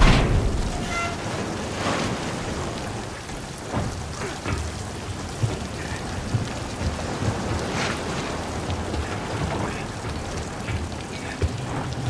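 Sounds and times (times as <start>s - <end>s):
pouring rain: 0.0s - 12.0s.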